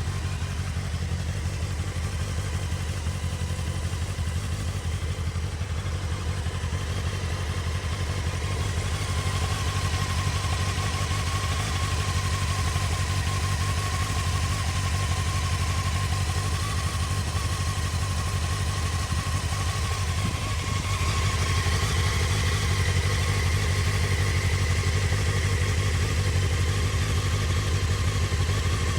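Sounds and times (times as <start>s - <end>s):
motorcycle engine idling: 0.0s - 28.9s.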